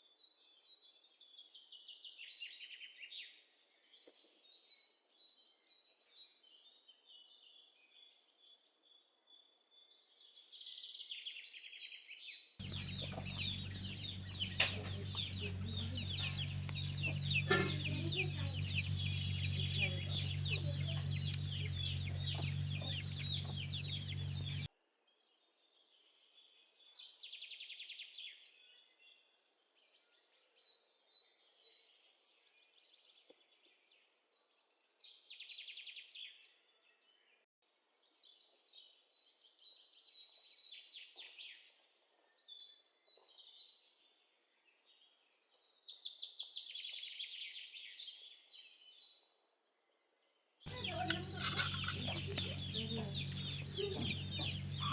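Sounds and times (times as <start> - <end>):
birds calling: 12.6 - 24.7, 50.7 - 54.9
chickens clucking: 12.6 - 24.7, 50.7 - 54.9.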